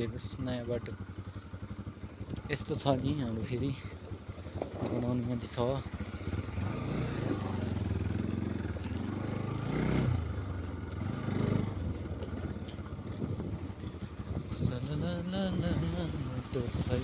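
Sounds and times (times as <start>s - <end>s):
vehicle engine revving: 4.2s - 17.0s.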